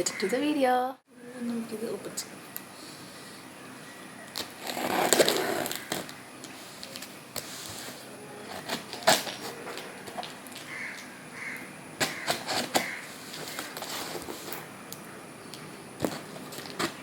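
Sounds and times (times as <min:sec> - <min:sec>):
packaging rustling and tearing: 0:04.3 - 0:11.1, 0:12.0 - 0:14.7, 0:16.0 - 0:17.0.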